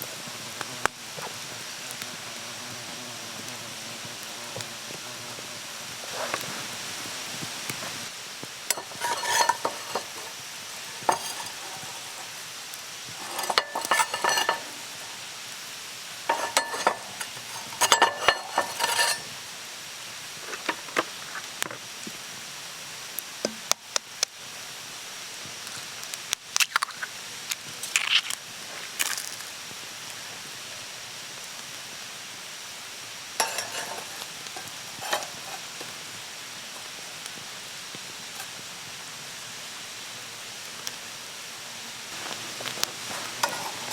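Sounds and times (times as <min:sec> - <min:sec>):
food sizzling in a pan: 0:00.0 - 0:43.9
utensil clinking and scraping pan: 0:08.7 - 0:15.4, 0:16.0 - 0:19.4, 0:33.4 - 0:36.1, 0:38.3 - 0:38.6, 0:42.2 - 0:43.9.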